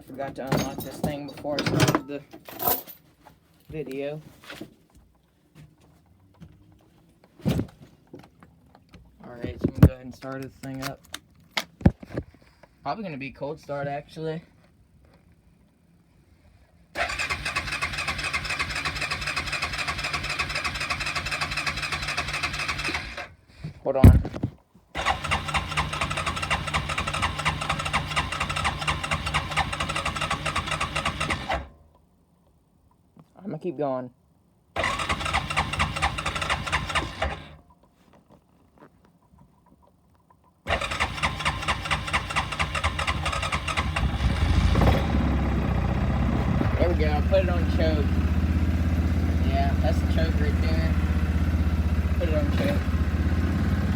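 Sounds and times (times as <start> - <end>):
engine cranking on starter: 17.0 - 23.4, 25.0 - 31.8, 34.8 - 37.6, 40.7 - 53.9
engine running: 40.7 - 53.9.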